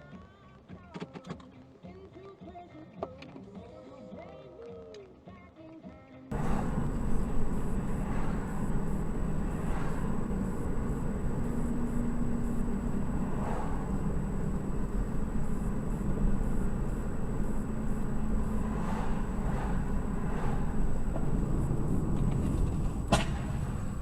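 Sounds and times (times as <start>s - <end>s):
car engine and road noise: 6.3s - 24.0s
passing traffic: 6.3s - 24.0s.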